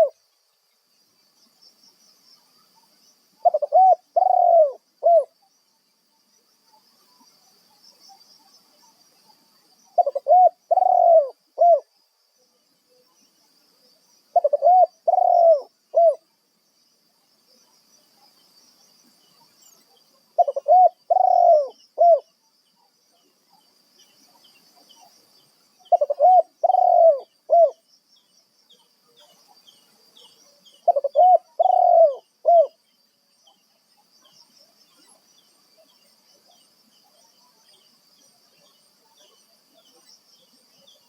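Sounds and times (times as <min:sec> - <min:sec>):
dove cooing: 0:03.4 - 0:05.3, 0:10.0 - 0:11.9, 0:14.3 - 0:16.2, 0:20.4 - 0:22.3, 0:25.9 - 0:27.8, 0:30.8 - 0:32.8.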